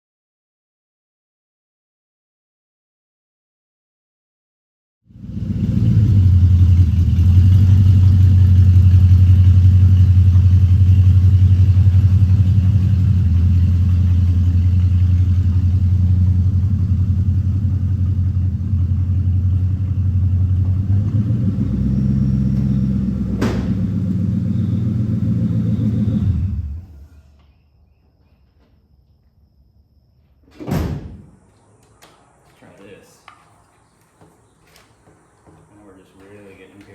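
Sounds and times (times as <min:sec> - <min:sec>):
deep engine exhaust note: 0:05.1 - 0:27.2.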